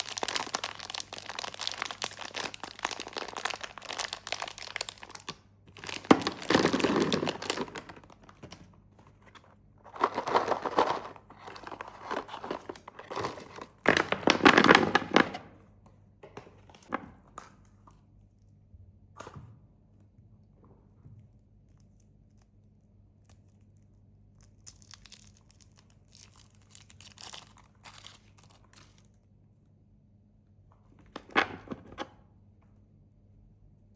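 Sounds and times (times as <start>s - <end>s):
snack wrappers crinkling: 0.0s - 15.3s, 23.2s - 29.2s.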